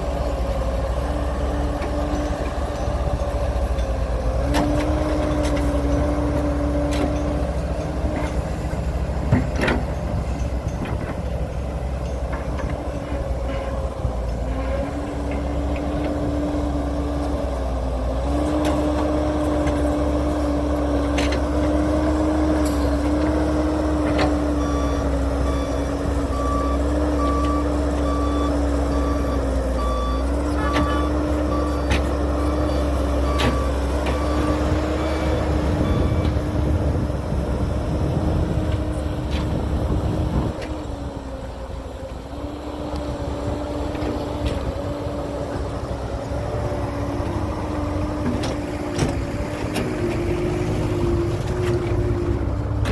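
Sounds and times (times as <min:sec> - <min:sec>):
diesel engine running: 0:00.0 - 0:52.9
reversing alarm beeping: 0:24.4 - 0:36.8.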